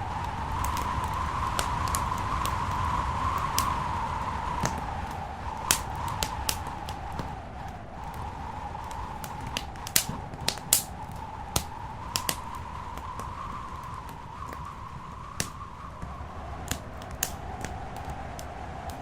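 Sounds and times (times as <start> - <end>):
wood fire crackling and popping: 0.0 - 19.0
faint wavering whistle: 10.8 - 19.0.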